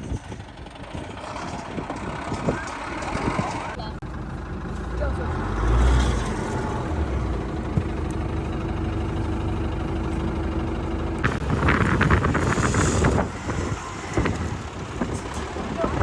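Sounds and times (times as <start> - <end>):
heavy vehicle engine running: 0.0 - 16.0.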